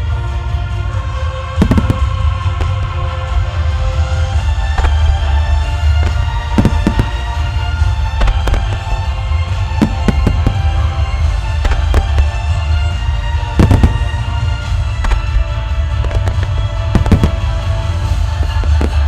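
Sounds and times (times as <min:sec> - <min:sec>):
firework shells bursting: 0:01.6 - 0:02.7, 0:05.8 - 0:12.4, 0:13.6 - 0:15.3, 0:16.2 - 0:19.0
deep rumble: 0:01.6 - 0:19.0.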